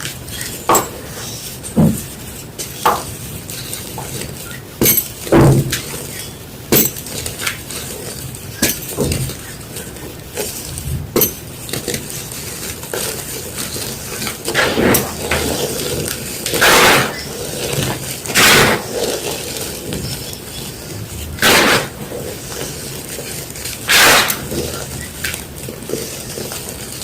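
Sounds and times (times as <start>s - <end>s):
chalk crackling when crushed: 5.8s - 27.0s
chalk crunches: 6.9s - 27.0s.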